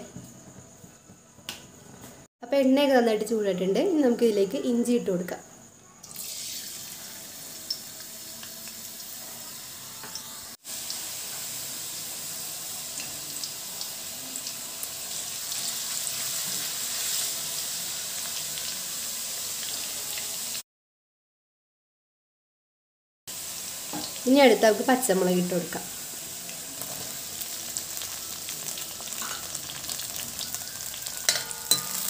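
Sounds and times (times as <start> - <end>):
ginger sizzling in oil: 6.0 - 20.6, 23.3 - 32.0.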